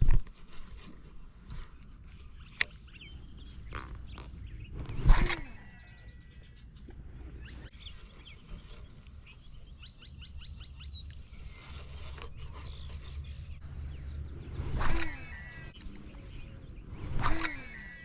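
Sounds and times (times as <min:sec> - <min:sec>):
birds chirping and calling: 0:00.8 - 0:18.0
low outdoor rumble: 0:01.2 - 0:18.0.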